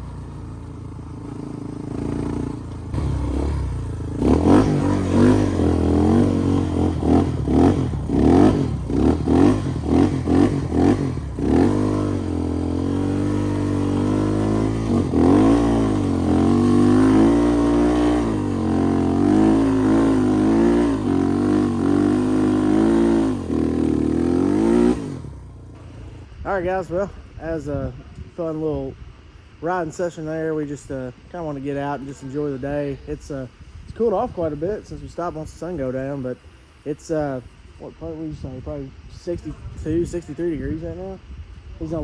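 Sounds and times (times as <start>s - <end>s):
off-road motorcycle engine revving: 0.0s - 28.9s.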